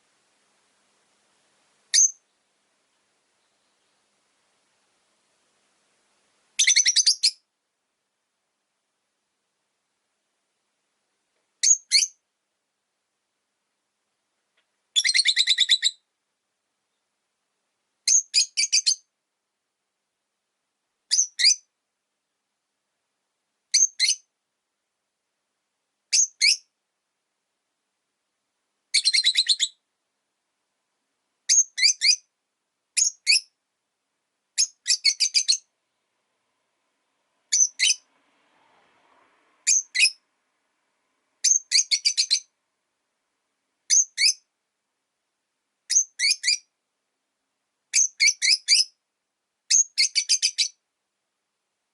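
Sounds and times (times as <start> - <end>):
lovebird chirping: 1.9 - 4.2, 6.6 - 7.5, 11.6 - 12.2, 14.9 - 16.1, 18.0 - 19.1, 21.1 - 21.7, 23.7 - 24.3, 26.1 - 26.7, 28.9 - 29.8, 31.5 - 32.3, 33.0 - 33.6, 34.6 - 35.7, 37.5 - 38.1, 39.6 - 40.2, 41.4 - 42.6, 43.9 - 44.5, 45.9 - 46.7, 47.9 - 49.0, 49.7 - 50.8.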